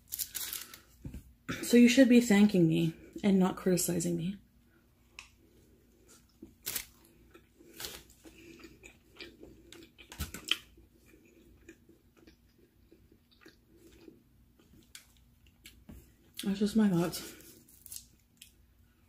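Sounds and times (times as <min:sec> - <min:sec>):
close chewing: 0:06.2 - 0:15.8.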